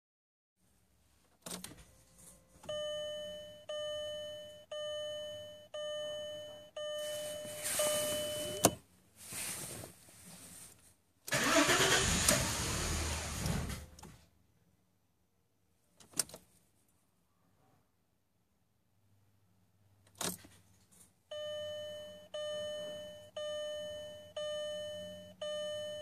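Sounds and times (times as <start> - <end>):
dashboard warning chime: 1.9 - 8.8, 21.3 - 26.0
engine cranking on starter: 11.3 - 13.9.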